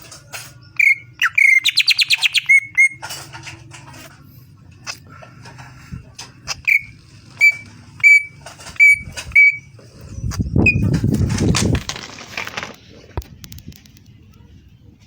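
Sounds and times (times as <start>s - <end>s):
bird whistled notes: 0.8s - 3.0s, 6.5s - 9.7s.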